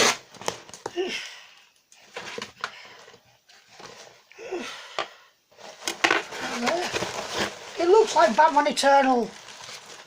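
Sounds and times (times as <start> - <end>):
paper or plastic rustling: 5.5 - 10.0.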